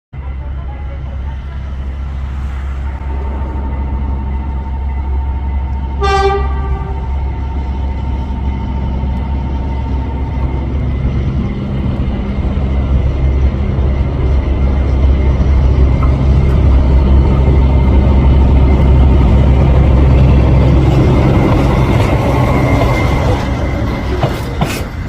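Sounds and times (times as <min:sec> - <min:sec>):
train rumbling on tracks: 0:00.1 - 0:25.0
train horn blast: 0:06.0 - 0:07.2.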